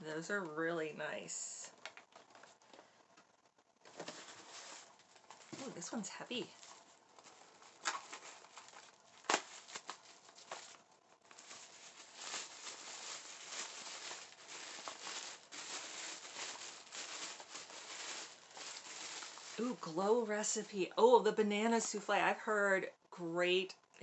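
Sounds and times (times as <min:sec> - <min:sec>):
wrapping crinkling: 0:01.7 - 0:21.0.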